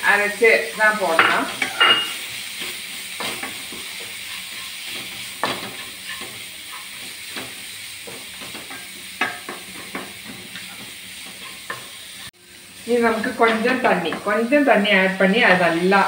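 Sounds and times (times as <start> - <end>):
onions sizzling in a pan: 0.0 - 16.0
spatula scraping a pan: 0.6 - 12.3.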